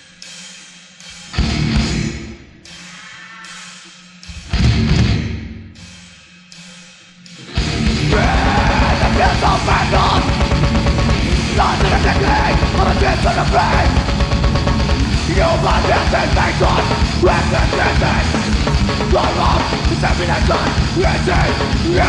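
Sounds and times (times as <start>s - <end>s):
pounding drums: 0.0s - 22.0s
distorted electric guitars: 1.1s - 6.0s, 7.3s - 22.0s
shouted vocals: 8.1s - 10.5s, 11.2s - 14.1s, 15.1s - 22.0s.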